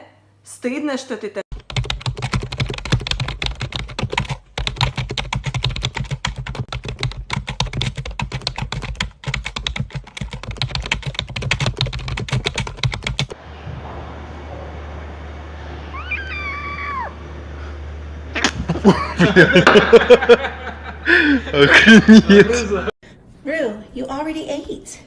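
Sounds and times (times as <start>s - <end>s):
rapid clicking and tapping: 1.6s - 13.4s
low steady hum: 13.3s - 23.9s.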